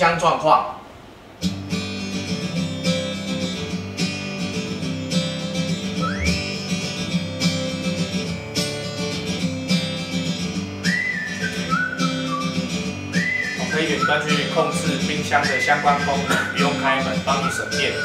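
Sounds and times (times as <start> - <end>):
strummed acoustic guitar: 1.4 - 18.0
whistled melody: 5.9 - 6.6, 10.8 - 18.0.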